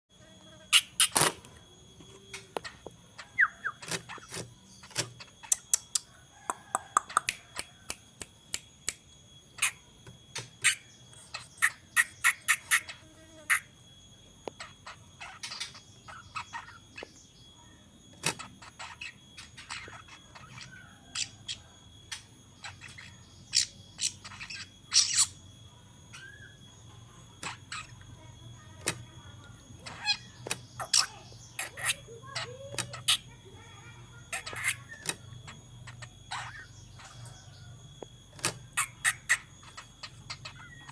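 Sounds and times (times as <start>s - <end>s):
faint high-pitched whine: 0.1s - 40.9s
bird sharp chattering calls: 0.6s - 1.4s, 10.5s - 13.7s, 29.7s - 37.7s, 38.5s - 40.9s.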